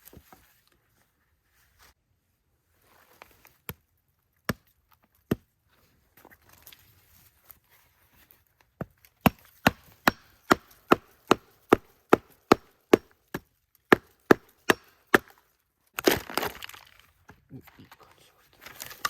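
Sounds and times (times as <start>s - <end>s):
tool chopping wood: 5.3s - 5.5s, 8.8s - 15.4s, 16.0s - 16.7s.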